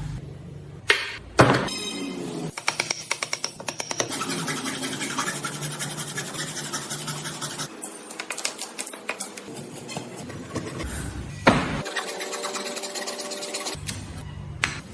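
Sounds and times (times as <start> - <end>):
tool scraping wood: 4.0 - 7.7.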